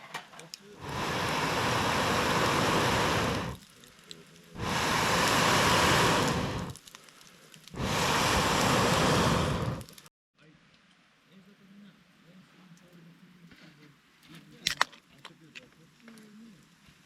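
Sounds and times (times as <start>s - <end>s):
air blown through a pipe: 0.8s - 3.6s, 4.6s - 6.8s, 7.8s - 10.0s.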